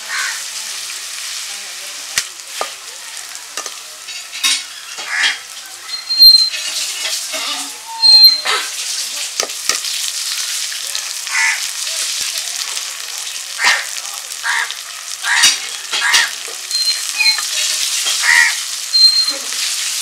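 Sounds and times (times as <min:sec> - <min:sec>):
food sizzling in oil: 0:00.0 - 0:20.0
metal spatula scraping pan: 0:04.1 - 0:08.8.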